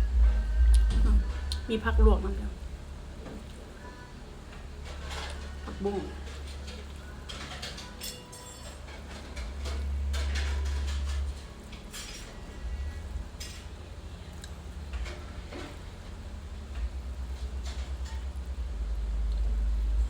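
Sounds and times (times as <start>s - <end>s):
low rumble: 0.0s - 3.2s
utensil clinking against dishes: 4.8s - 12.6s.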